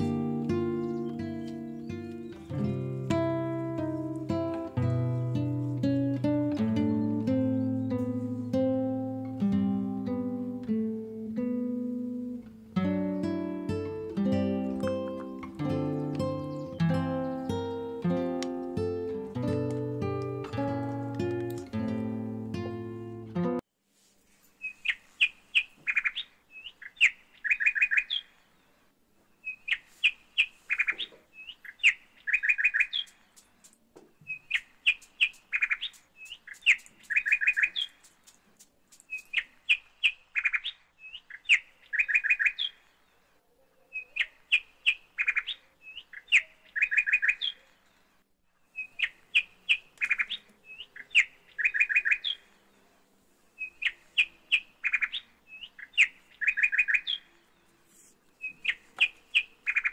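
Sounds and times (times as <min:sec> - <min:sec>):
bird singing repeated phrase: 0:00.0 - 0:02.6, 0:06.6 - 0:08.6, 0:13.0 - 0:18.0, 0:30.7 - 0:33.3, 0:39.1 - 0:42.9, 0:43.7 - 0:47.9, 0:48.6 - 0:52.6, 0:53.6 - 0:57.7, 0:58.4 - 0:59.9.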